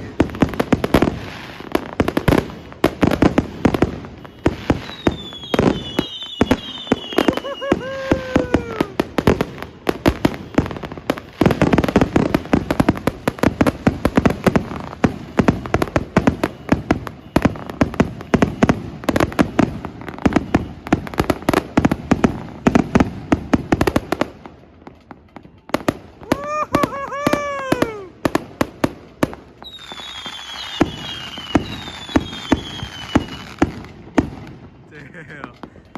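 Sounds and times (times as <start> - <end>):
fireworks and firecrackers banging: 0.0 - 35.9
falling firework whistle: 2.2 - 13.0, 15.8 - 22.0, 25.7 - 28.3, 29.6 - 33.8.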